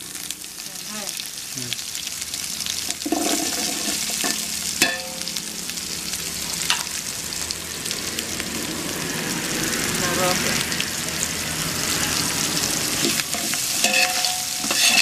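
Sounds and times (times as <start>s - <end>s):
shallots sizzling in oil: 0.0s - 15.0s
metal spoon stirring: 13.0s - 15.0s.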